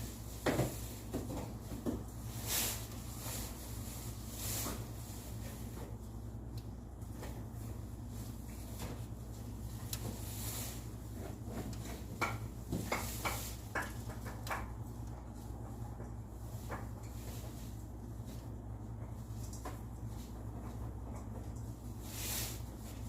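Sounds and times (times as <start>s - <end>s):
steady low hum: 0.0s - 23.0s
sharp clicks and knocks: 11.6s - 17.2s.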